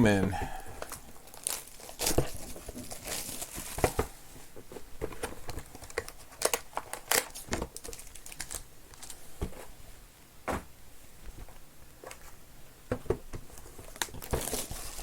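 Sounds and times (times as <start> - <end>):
cardboard crinkling and rustling: 0.8 - 9.8, 13.0 - 15.0.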